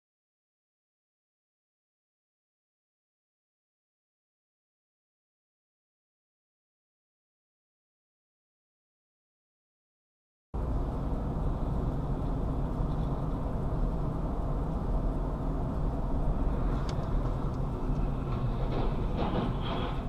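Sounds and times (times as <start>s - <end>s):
car driving rumble: 10.6s - 20.0s.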